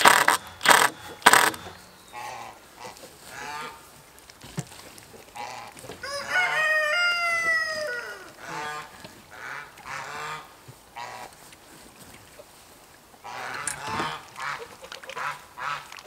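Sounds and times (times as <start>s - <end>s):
rooster crowing: 6.0s - 8.7s.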